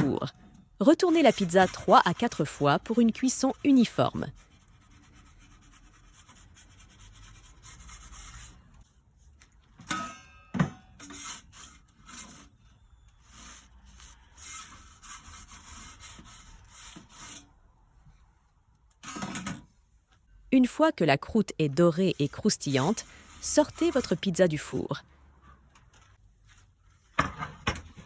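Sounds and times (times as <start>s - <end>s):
pizza peel scraping on stone: 1.0s - 4.4s.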